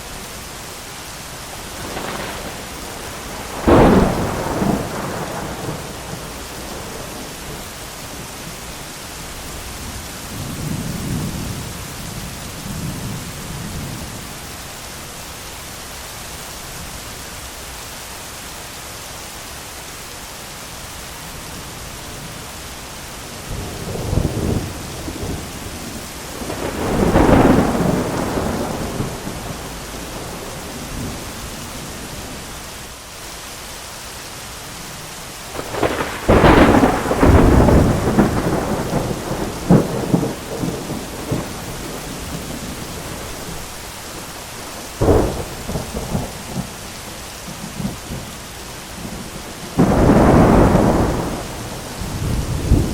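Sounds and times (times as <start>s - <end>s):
heavy rain: 0.0s - 52.9s
rolling thunder: 1.6s - 7.7s, 23.5s - 32.4s, 35.5s - 43.8s, 44.6s - 46.9s, 49.0s - 52.9s.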